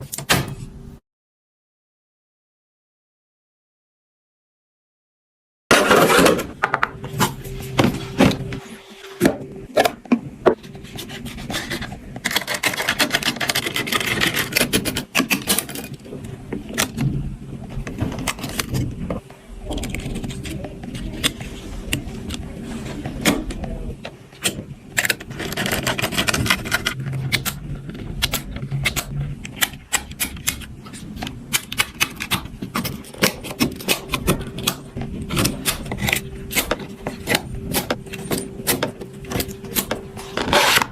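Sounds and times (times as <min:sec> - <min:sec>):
faint steady hum: 0:05.8 - 0:40.9
scraping and rustling packaging: 0:10.6 - 0:23.9, 0:24.6 - 0:28.4, 0:30.4 - 0:40.9.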